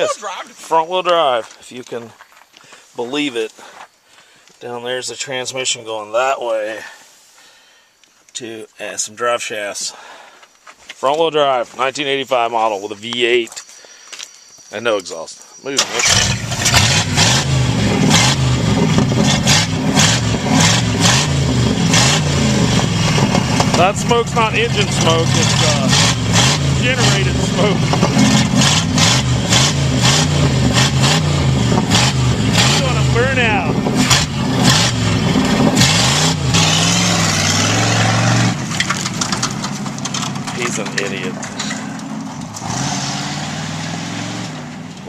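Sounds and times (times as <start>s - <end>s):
engine revving in blips: 15.7s - 45.0s
exhaust crackling: 15.7s - 45.0s.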